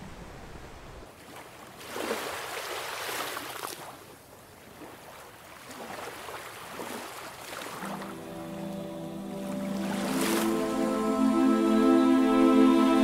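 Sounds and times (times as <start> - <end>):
sea water sloshing and splashing: 1.2 - 8.2, 9.4 - 10.6.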